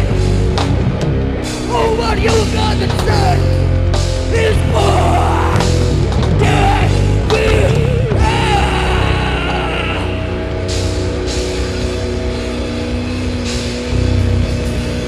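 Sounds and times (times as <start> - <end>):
live rock band playing: 0.0 - 15.0
vocalist singing: 1.6 - 3.6, 4.2 - 10.9
pounding drums: 1.6 - 15.0.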